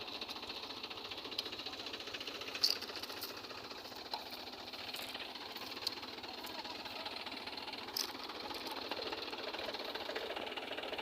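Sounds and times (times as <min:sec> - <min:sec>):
tractor engine clattering: 0:00.0 - 0:11.0.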